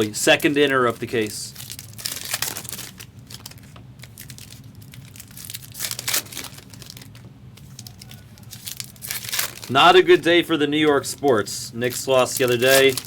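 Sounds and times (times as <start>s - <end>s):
faint low hum: 0.0s - 13.0s
plastic packaging crinkling: 0.0s - 13.0s.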